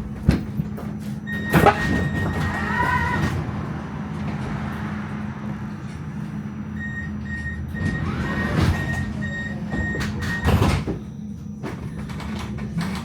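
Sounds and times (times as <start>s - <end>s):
doors sliding with heavy knocks: 0.0s - 6.3s, 7.2s - 11.1s
tram humming: 0.0s - 13.0s
short high door-warning beeps: 1.2s - 3.3s, 6.7s - 13.0s.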